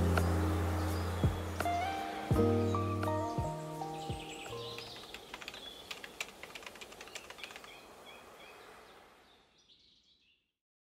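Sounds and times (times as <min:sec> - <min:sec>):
background hiss: 0:00.0 - 0:09.9
birds chirping: 0:00.0 - 0:10.5
sharp clicks: 0:04.5 - 0:07.8.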